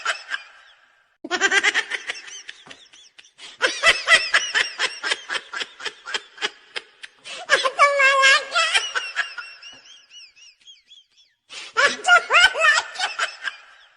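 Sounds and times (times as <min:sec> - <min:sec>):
person laughing hard: 0:00.0 - 0:13.9.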